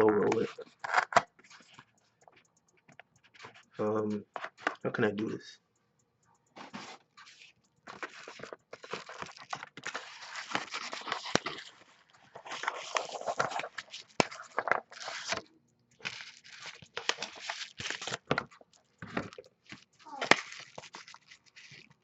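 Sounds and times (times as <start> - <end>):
cardboard box tearing and crinkling: 14.8 - 15.4, 16.1 - 18.3, 20.2 - 21.7.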